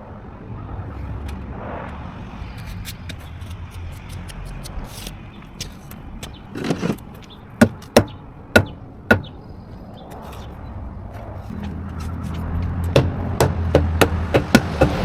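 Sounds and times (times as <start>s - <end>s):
hard knocks: 7.6s - 9.3s, 12.6s - 15.0s.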